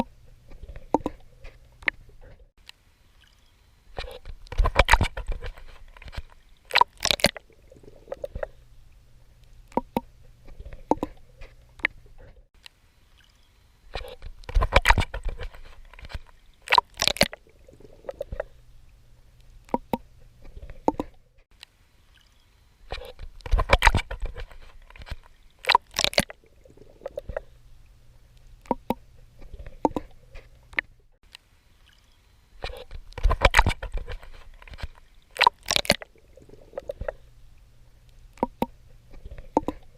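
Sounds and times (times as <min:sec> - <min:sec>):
faint low hum: 0:00.0 - 0:39.9
water clicks: 0:00.0 - 0:39.9
swimming strokes splashing: 0:14.0 - 0:18.6, 0:31.8 - 0:37.3.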